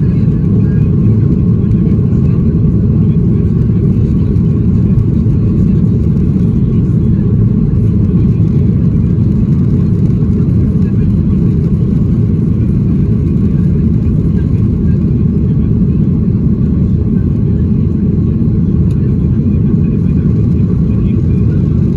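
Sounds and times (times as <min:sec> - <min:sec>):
faint engine whine: 0:00.0 - 0:21.9
jet engine roar in cabin: 0:00.0 - 0:21.9.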